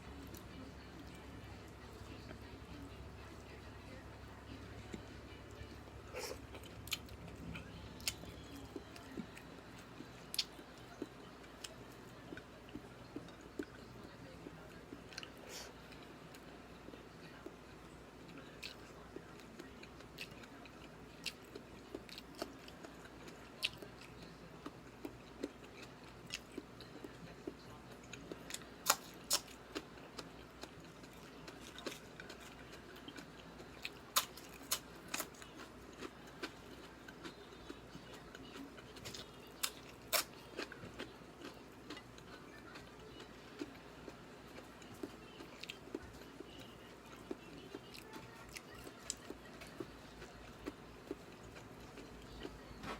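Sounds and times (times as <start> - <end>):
person chewing: 6.1 - 13.8, 19.6 - 52.9.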